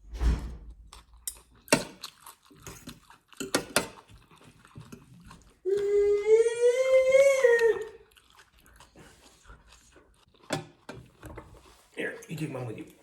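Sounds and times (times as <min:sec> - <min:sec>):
person chewing crunchy food: 0:00.7 - 0:06.3, 0:07.4 - 0:12.0
dog howling: 0:05.6 - 0:08.0.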